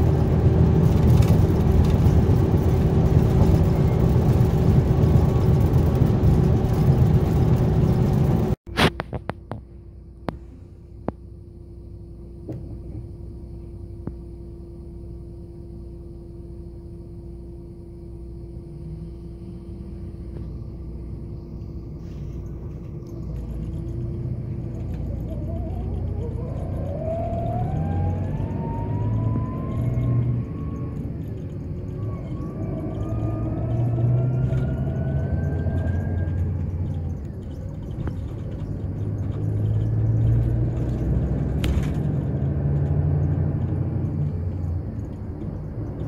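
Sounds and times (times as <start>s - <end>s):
diesel bus engine rumbling: 0.0s - 46.0s
rising whine: 0.0s - 46.0s.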